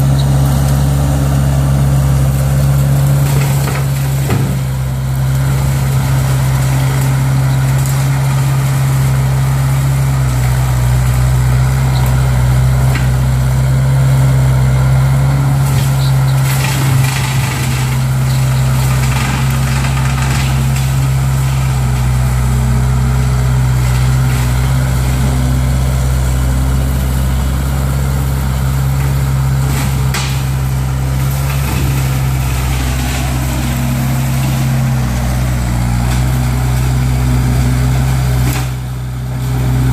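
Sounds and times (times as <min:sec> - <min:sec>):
skid steer diesel engine running: 0:00.0 - 0:39.9.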